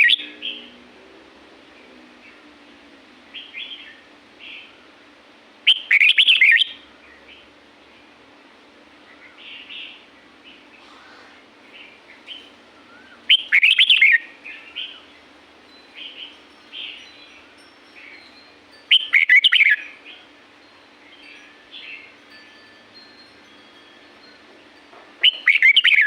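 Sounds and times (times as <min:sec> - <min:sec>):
bird singing warbled phrases: 0:00.0 - 0:00.8, 0:05.7 - 0:07.5, 0:09.0 - 0:17.4, 0:18.0 - 0:20.3, 0:25.2 - 0:26.0
soft bird chirps: 0:09.0 - 0:20.3, 0:25.2 - 0:26.0.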